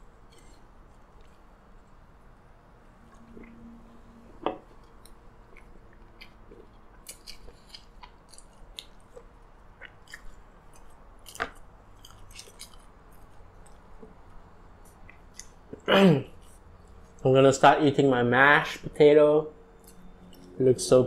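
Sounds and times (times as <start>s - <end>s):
chewing with wet mouth clicks: 3.1s - 3.6s, 4.8s - 14.2s, 14.8s - 15.8s.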